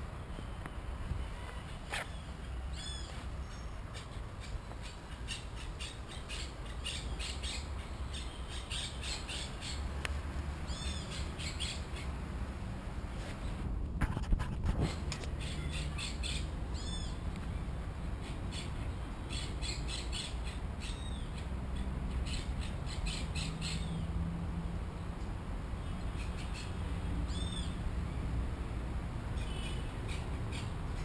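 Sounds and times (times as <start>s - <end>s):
birds squawking and calling: 1.2s - 9.9s, 10.6s - 12.2s, 14.8s - 17.2s, 18.1s - 24.1s, 26.1s - 27.8s, 29.4s - 31.0s
wind rumble on microphone: 12.3s - 15.4s.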